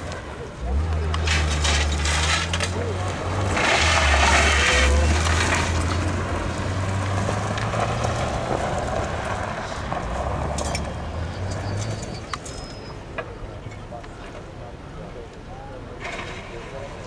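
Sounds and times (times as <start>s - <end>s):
tyres on gravel: 0.0s - 14.6s
car engine humming: 0.0s - 17.0s.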